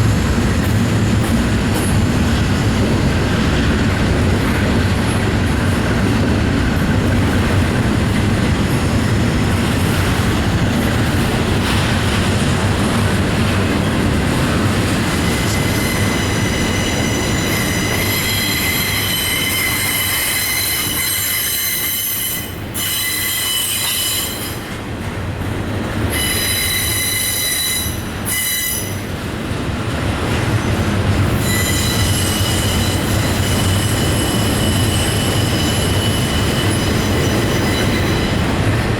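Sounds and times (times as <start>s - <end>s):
freight train cars rumbling: 0.0s - 38.9s
train wheels squealing: 15.1s - 24.8s, 26.0s - 29.2s, 30.5s - 38.9s.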